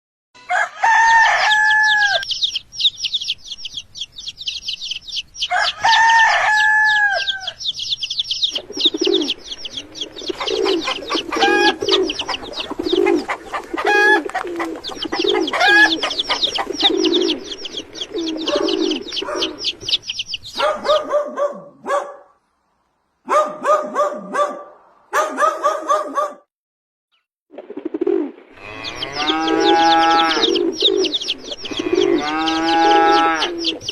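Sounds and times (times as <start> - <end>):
rooster crowing: 0.4 - 2.3, 5.5 - 7.7, 11.3 - 12.0, 28.6 - 30.6, 31.6 - 33.7
small birds chirping: 1.4 - 22.4, 28.6 - 33.9
hen clucking: 1.5 - 21.6, 27.7 - 33.9.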